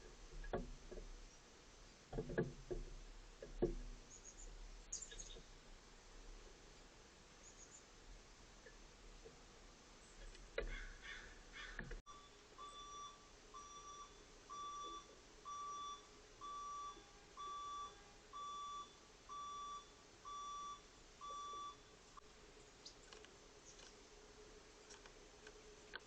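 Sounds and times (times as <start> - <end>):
electronic beeper short beeps: 12.1 - 21.8
faint clicks and rustles: 21.3 - 26.0.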